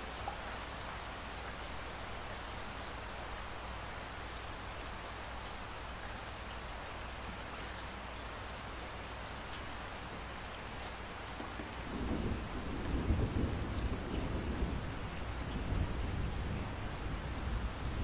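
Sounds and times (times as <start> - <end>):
steady rainfall: 0.0 - 18.0
thunder rumbling: 11.8 - 18.0.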